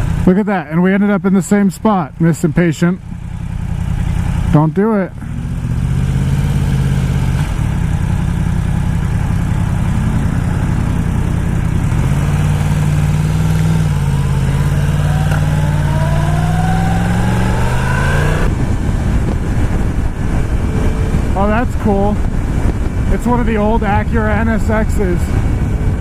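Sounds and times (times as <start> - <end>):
motorcycle engine accelerating: 2.1 - 26.0.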